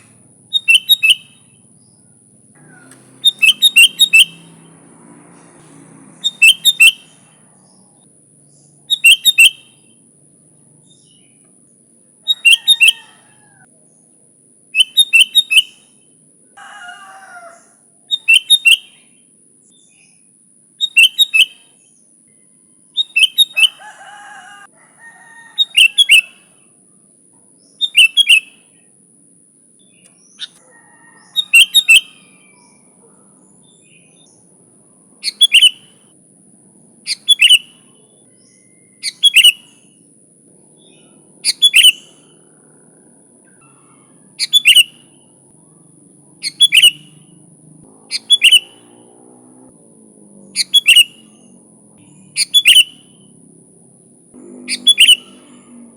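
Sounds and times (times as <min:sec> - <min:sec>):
bird singing quick falling notes: 0:00.0 - 0:02.0, 0:02.6 - 0:10.0, 0:27.8 - 0:28.6, 0:35.2 - 0:36.1, 0:37.1 - 0:40.0, 0:41.0 - 0:45.4, 0:46.4 - 0:49.7, 0:50.4 - 0:53.4, 0:54.4 - 0:55.9.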